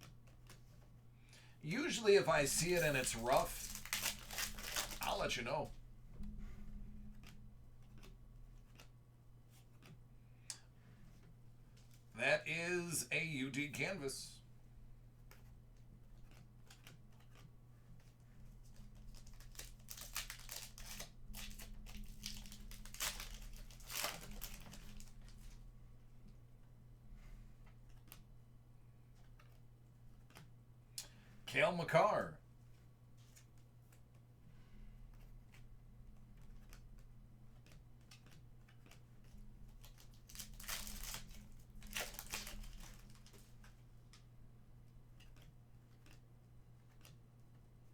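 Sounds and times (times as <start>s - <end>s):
low electrical hum: 0.0s - 47.9s
cards clicking: 1.7s - 5.7s, 16.2s - 25.5s
plastic packaging crinkling: 1.7s - 5.8s, 18.6s - 25.6s, 39.3s - 44.2s.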